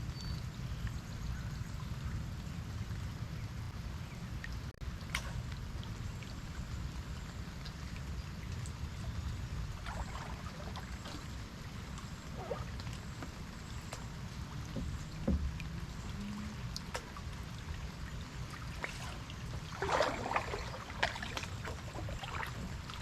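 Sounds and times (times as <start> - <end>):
steady low rumble: 0.0 - 23.0
water lapping around a kayak: 0.0 - 23.0
water dripping and plinking: 11.9 - 18.9
soft knock: 14.8 - 15.5.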